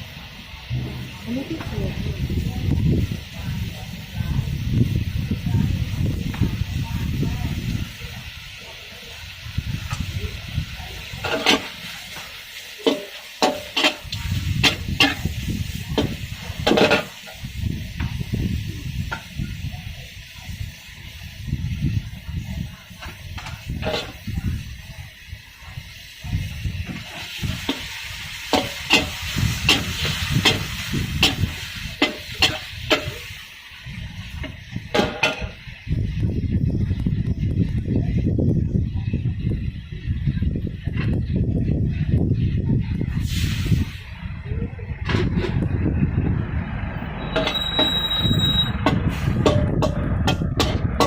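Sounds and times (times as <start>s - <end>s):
low rumble: 0.0s - 8.4s, 35.6s - 51.0s
food sizzling: 0.0s - 51.0s
metal spatula scraping a wok: 11.0s - 17.6s, 23.5s - 24.3s, 26.8s - 33.4s, 47.2s - 50.9s
metal spatula clanking on wok: 12.8s - 15.4s, 28.5s - 33.3s, 49.4s - 51.0s.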